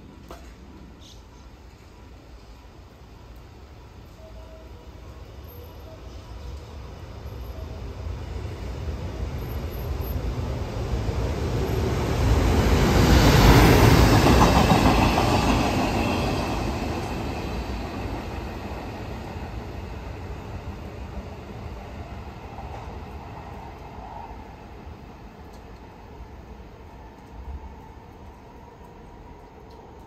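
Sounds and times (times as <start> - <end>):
freight train passing: 0.0 - 30.0.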